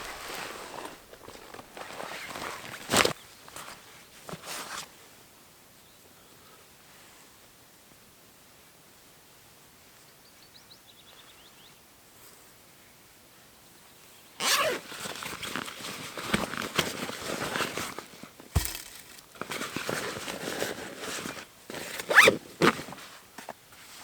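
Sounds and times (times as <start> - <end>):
rustling and scraping of gear: 0.0 - 5.0, 14.4 - 24.0
dull thump: 18.6 - 19.2.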